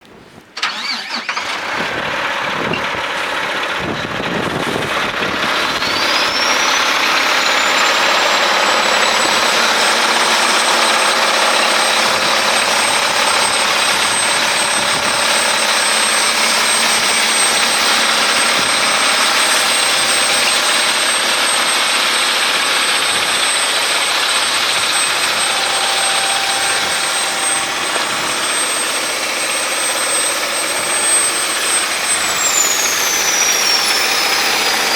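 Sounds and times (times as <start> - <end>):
diesel truck engine starting and idling: 0.6 - 34.9
high whine: 3.8 - 34.9.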